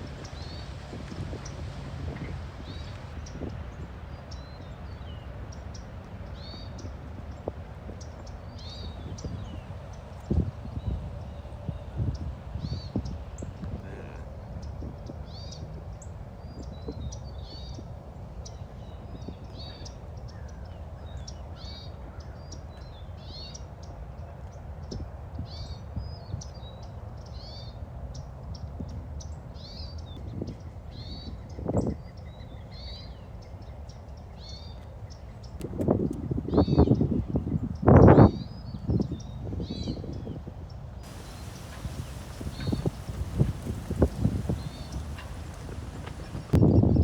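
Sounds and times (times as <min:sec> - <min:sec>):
birds chirping: 0:41.0 - 0:46.6
low background rumble: 0:41.0 - 0:46.6
lower bird call: 0:41.0 - 0:46.6.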